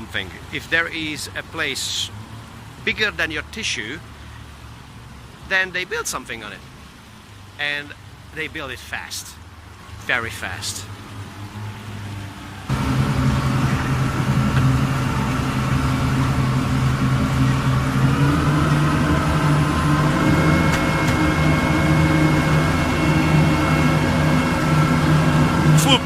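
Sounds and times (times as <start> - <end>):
boat engine running: 9.9 - 26.0.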